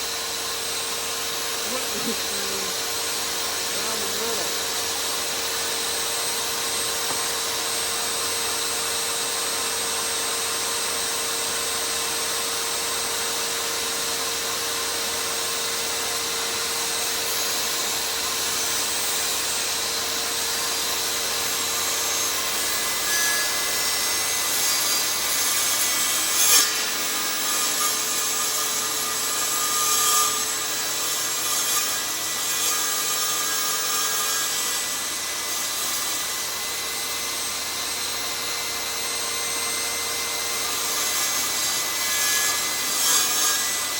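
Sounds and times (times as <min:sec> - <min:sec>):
power saw cutting antler: 0:00.0 - 0:43.9
sharp tap: 0:07.1 - 0:07.3.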